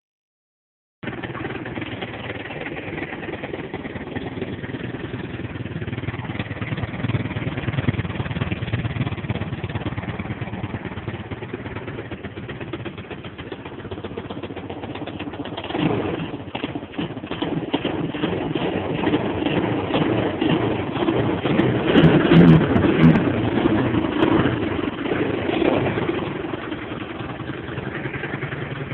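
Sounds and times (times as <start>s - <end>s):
atv engine running: 1.0s - 28.9s.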